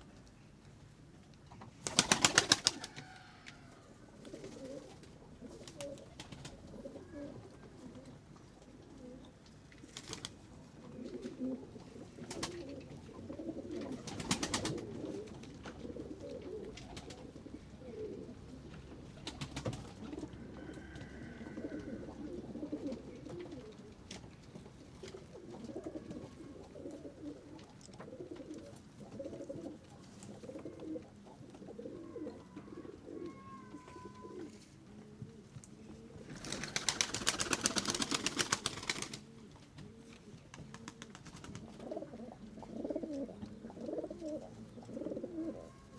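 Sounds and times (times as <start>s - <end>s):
wings flapping: 1.8s - 3.3s, 5.6s - 6.6s, 9.9s - 10.4s, 12.2s - 12.8s, 13.8s - 15.4s, 19.2s - 20.2s, 36.2s - 39.9s, 40.5s - 41.8s
pigeons cooing: 1.8s - 9.4s, 10.2s - 45.9s.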